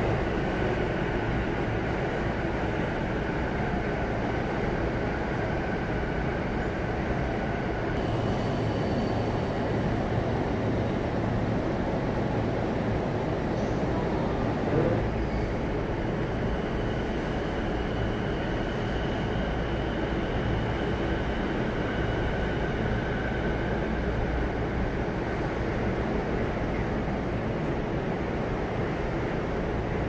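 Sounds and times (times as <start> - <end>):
train equipment hum: 0.0 - 30.0.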